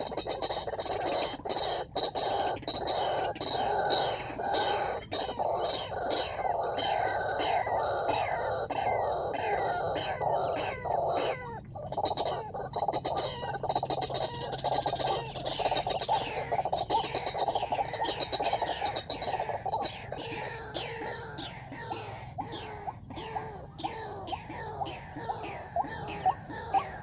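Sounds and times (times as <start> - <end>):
waterhen harsh calls: 0.0 - 27.0
dense steady chorus: 18.7 - 27.0.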